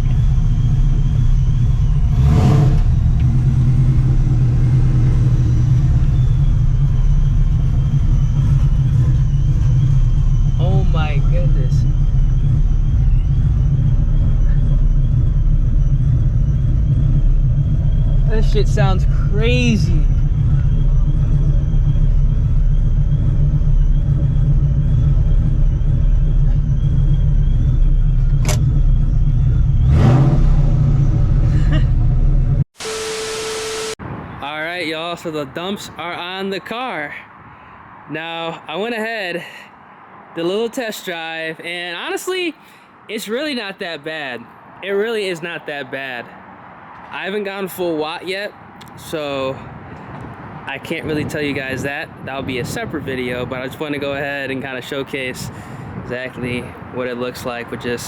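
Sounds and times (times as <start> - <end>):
car engine deep rumble: 0.0 - 32.8, 46.0 - 58.0
engine throttle blip: 0.0 - 34.0
sharp click: 28.4 - 28.7.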